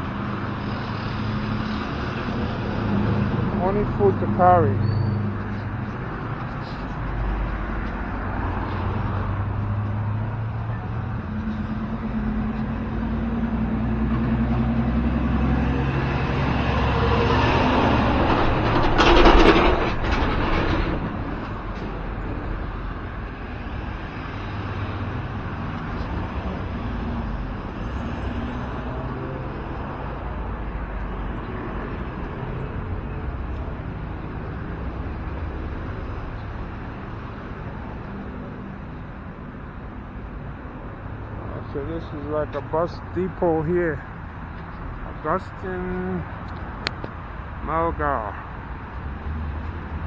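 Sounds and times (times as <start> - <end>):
road traffic: 0.0 - 50.0.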